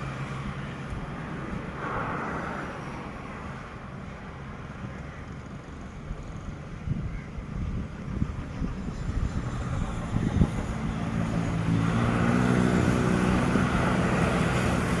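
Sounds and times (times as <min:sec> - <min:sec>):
aircraft engines droning: 0:00.0 - 0:15.0
wind buffeting microphone: 0:05.3 - 0:15.0.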